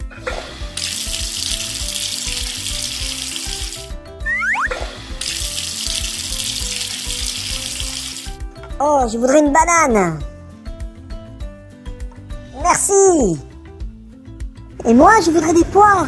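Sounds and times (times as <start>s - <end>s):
light children's music: 0.0s - 16.0s
tap water running: 0.3s - 4.0s, 4.8s - 8.4s
rising whistle-like glide: 4.2s - 4.8s.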